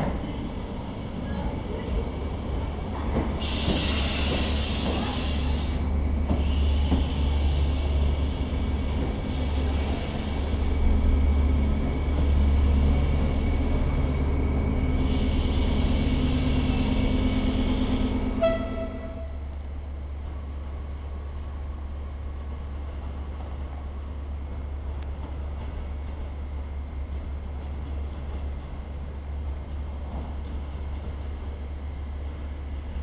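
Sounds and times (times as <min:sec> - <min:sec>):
train rumbling past: 0:00.0 - 0:33.0
wheel squeal and hiss: 0:03.4 - 0:05.8, 0:06.4 - 0:08.0, 0:14.3 - 0:18.1.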